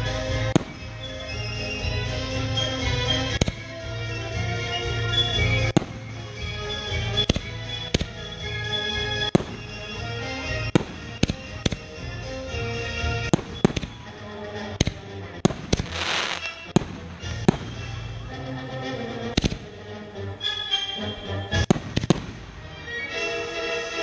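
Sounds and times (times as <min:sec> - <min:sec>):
music playing: 0:00.0 - 0:24.0
fireworks hissing and crackling: 0:00.2 - 0:03.8, 0:09.3 - 0:14.2, 0:14.8 - 0:18.0, 0:21.7 - 0:22.7
fireworks banging: 0:00.3 - 0:01.8, 0:03.1 - 0:03.9, 0:05.6 - 0:08.5, 0:09.2 - 0:14.2, 0:14.8 - 0:18.2, 0:19.4 - 0:19.7, 0:21.6 - 0:22.8.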